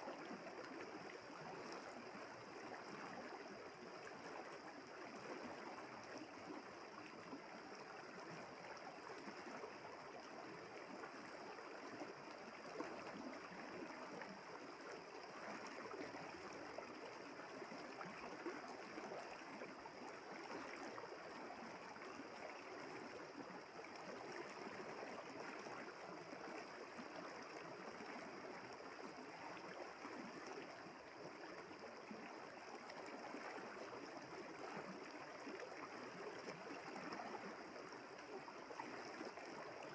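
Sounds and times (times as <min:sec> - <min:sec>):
small water splashes: 0:00.0 - 0:39.9.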